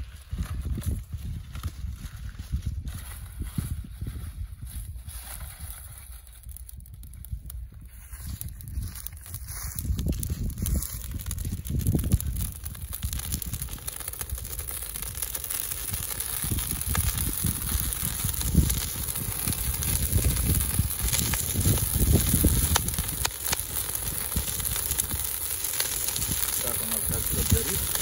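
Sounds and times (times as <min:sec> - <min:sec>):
bonfire crackling and popping: 0:00.0 - 0:28.0
wind buffeting microphone: 0:00.0 - 0:28.0.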